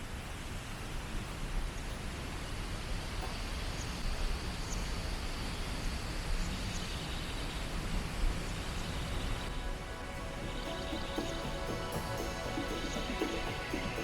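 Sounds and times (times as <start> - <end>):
background music: 9.2 - 14.0.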